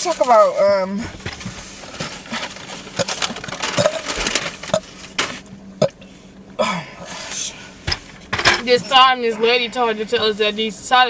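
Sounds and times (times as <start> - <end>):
clicks and rustles: 1.1 - 5.5.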